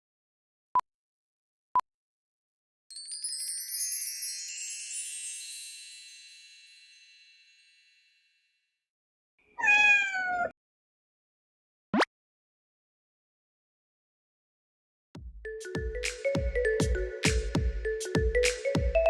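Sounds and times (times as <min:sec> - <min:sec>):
sparkling wind chimes: 0:02.9 - 0:08.6
short meow-like call: 0:09.6 - 0:10.5.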